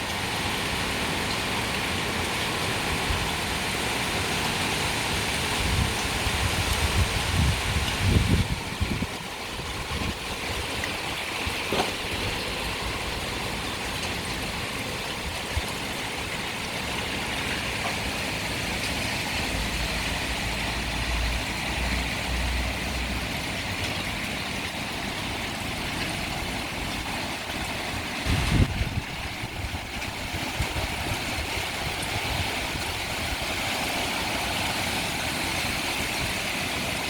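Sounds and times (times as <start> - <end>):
heavy rain pouring: 0.0 - 37.0
wind rumbling on microphone: 5.0 - 24.2, 26.2 - 37.0.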